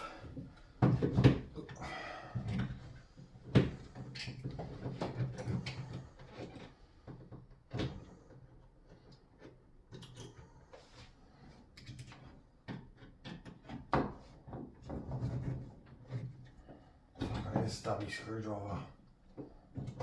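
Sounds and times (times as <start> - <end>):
knocks and clatter of tools: 0.8 - 1.7, 2.4 - 8.2, 11.8 - 16.6, 17.2 - 17.9.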